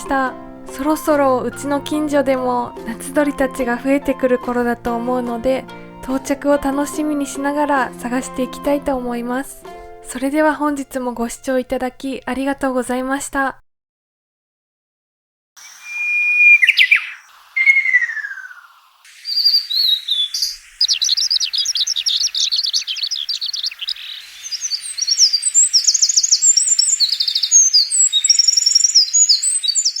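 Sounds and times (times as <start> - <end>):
bird whistling: 15.6 - 30.0
high rapid bird trills: 15.6 - 30.0
bird chattering: 15.7 - 30.0.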